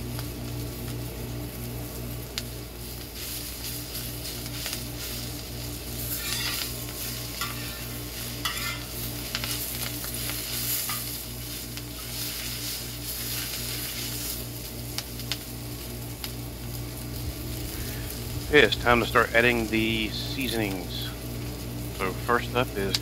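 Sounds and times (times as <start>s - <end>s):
cabbage sizzling in a wok: 0.0s - 23.0s
metal spatula scraping steel: 5.0s - 14.3s.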